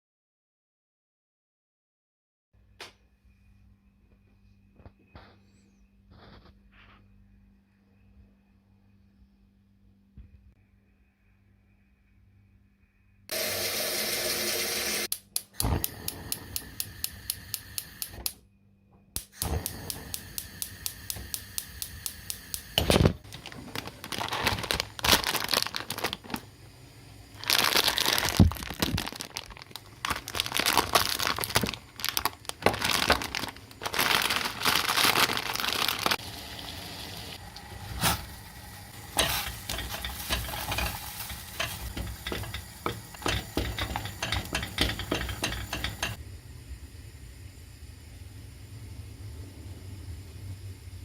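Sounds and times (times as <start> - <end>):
plastic packaging crinkling and tearing: 22.9 - 26.5, 27.4 - 36.2.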